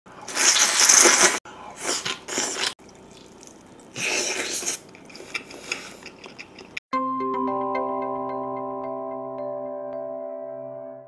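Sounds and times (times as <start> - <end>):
person slurping while eating: 0.2 - 6.3.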